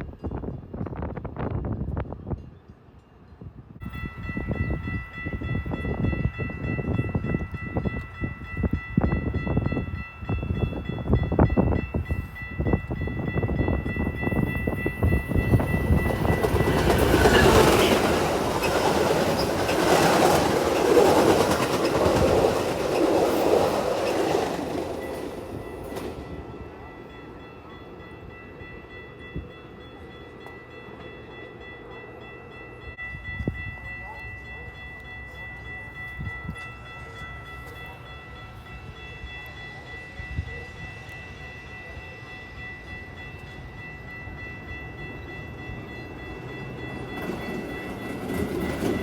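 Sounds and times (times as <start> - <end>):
train wheels clacking and rumbling: 4.2 - 27.5, 33.2 - 49.0.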